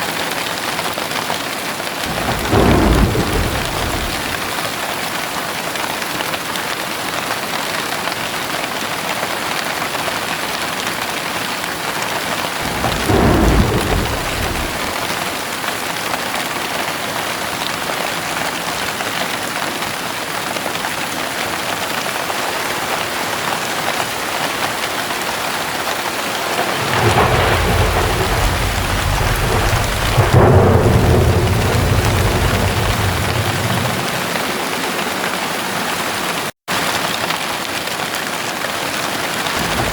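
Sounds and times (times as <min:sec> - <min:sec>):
heavy rain: 0:00.0 - 0:39.9
thunder clap: 0:02.0 - 0:04.9, 0:11.9 - 0:15.6, 0:25.5 - 0:35.7, 0:39.6 - 0:39.9
thunder rumbling: 0:02.0 - 0:04.9, 0:12.1 - 0:15.5, 0:25.8 - 0:36.0, 0:39.6 - 0:39.9.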